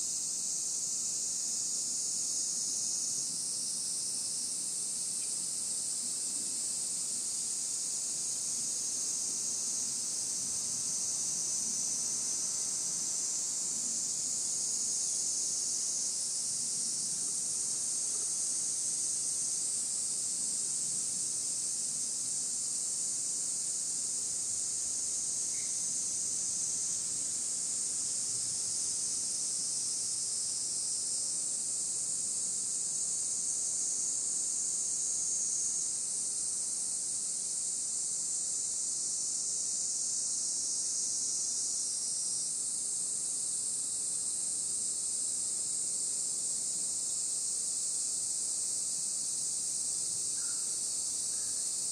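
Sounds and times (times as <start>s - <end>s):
insects singing: 25.3s - 27.0s, 47.0s - 51.9s.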